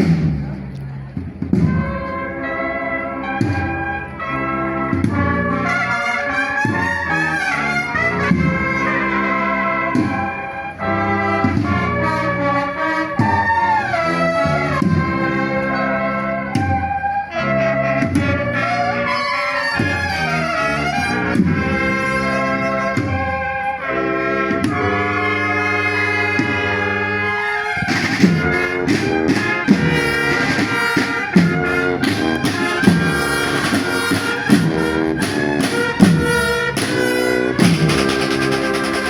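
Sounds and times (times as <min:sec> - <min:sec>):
drums steady beat: 0:00.0 - 0:02.3, 0:27.8 - 0:39.0
brass instruments playing chords: 0:00.0 - 0:39.0.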